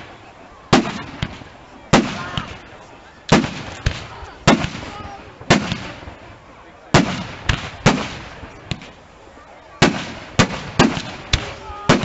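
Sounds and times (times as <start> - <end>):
firework shells bursting with bangs: 0.7 - 2.6, 3.3 - 6.2, 6.9 - 9.0, 9.8 - 12.0.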